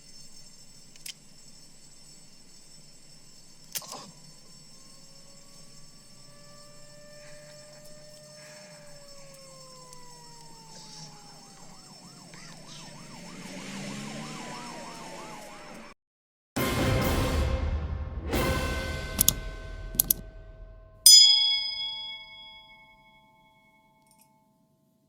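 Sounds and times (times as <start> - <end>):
siren wailing: 3.8 - 16.0
siren yelping: 3.9 - 16.0.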